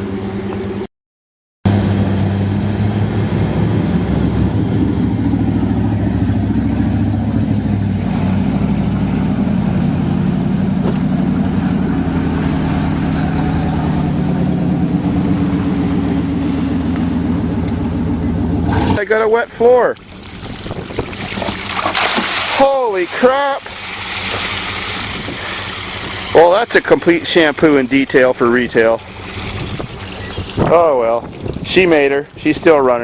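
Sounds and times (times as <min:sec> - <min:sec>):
truck engine running under load: 0:01.7 - 0:21.9, 0:23.6 - 0:31.7.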